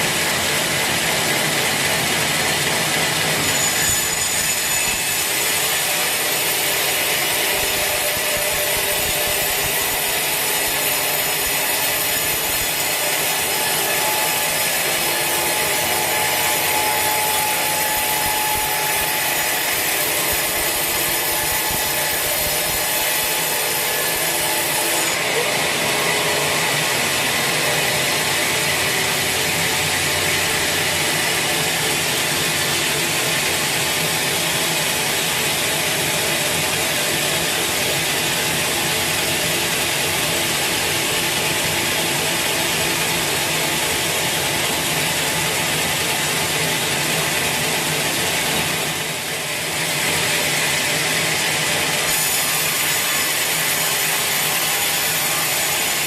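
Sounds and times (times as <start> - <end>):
saw blade grinding through log: 3.0 - 35.4, 48.3 - 56.0.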